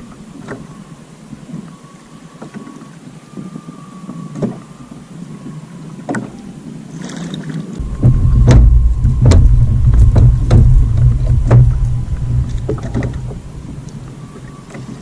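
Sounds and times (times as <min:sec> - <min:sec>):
sharp knocks: 0:07.8 - 0:14.1
loud low rumble: 0:07.8 - 0:14.7
faint knocks: 0:07.8 - 0:14.9.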